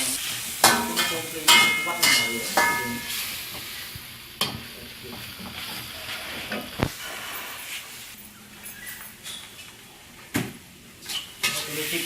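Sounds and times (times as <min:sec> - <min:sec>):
paste sizzling in hot oil: 0:00.0 - 0:08.3.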